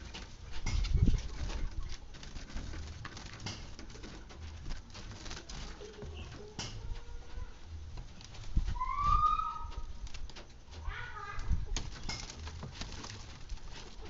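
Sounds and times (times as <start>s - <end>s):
drawn-out rising bird call: 8.8s - 9.9s.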